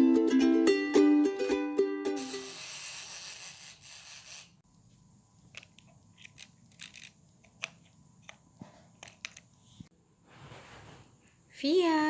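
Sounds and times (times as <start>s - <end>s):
quiet room hum: 2.7s - 12.0s.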